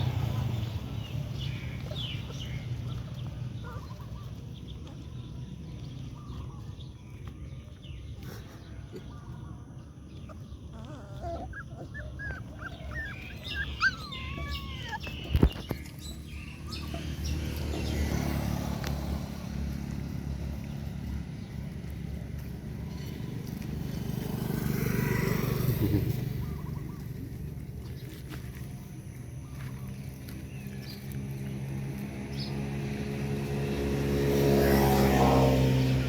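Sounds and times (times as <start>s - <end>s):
puppies squeaking and whimpering: 10.2s - 18.0s.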